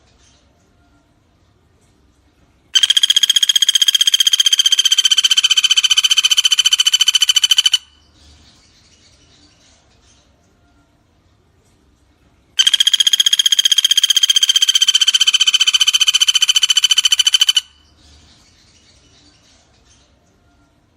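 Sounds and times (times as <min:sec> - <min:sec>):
woodpecker rattling call: 0:02.8 - 0:08.1, 0:12.6 - 0:17.9.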